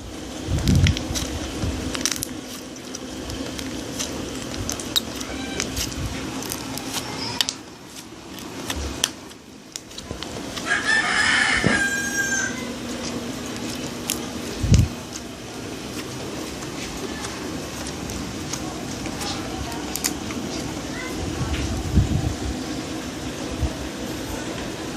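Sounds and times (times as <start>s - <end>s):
steady low hum: 0.0s - 24.9s
drawn-out pitched call: 5.1s - 5.9s, 10.6s - 12.9s.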